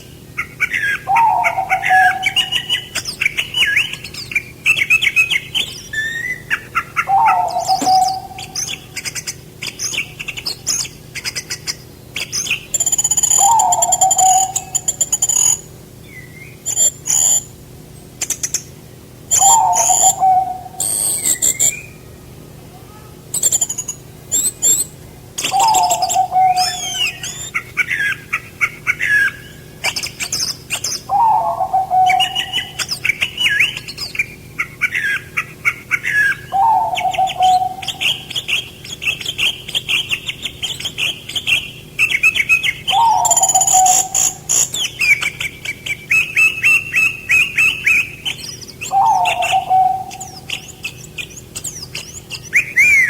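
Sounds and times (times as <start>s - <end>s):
songbirds singing: 0.0s - 53.0s
low falling bird note: 0.9s - 9.0s, 19.3s - 22.5s, 31.1s - 33.6s.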